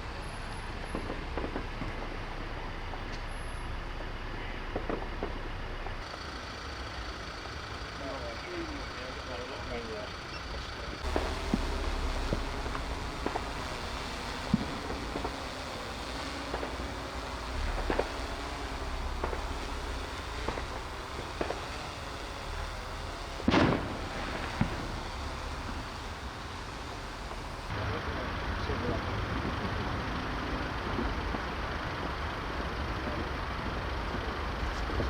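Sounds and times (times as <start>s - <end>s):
faint wavering hum: 11.0s - 27.7s
fireworks bangs and pops: 11.0s - 27.7s
low rumble: 11.0s - 27.7s.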